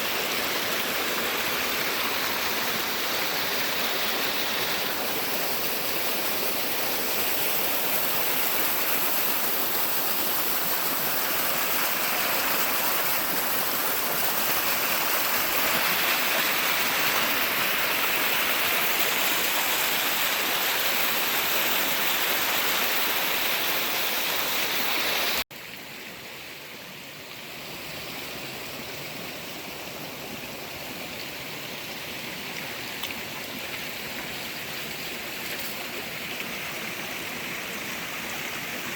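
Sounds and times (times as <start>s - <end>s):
creek water flowing: 0.0s - 38.9s.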